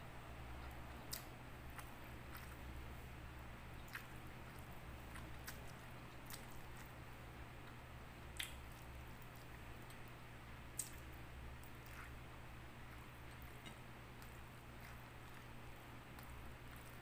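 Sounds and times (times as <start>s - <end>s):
wet chewing mouth sounds: 0.5s - 3.0s, 3.8s - 17.0s.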